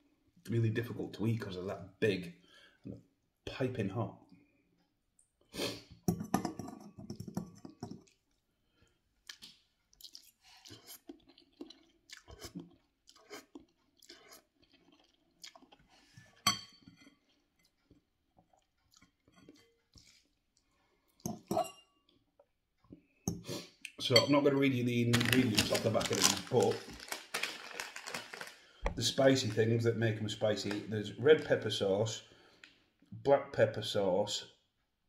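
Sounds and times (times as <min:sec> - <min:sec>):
person chewing noodles: 0:07.9 - 0:16.4, 0:17.0 - 0:21.2.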